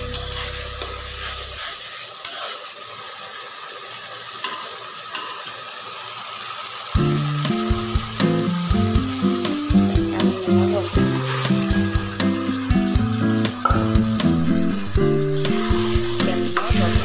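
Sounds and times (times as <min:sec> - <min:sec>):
curry sizzling in hot oil: 0:00.0 - 0:17.0
background music: 0:07.0 - 0:17.0.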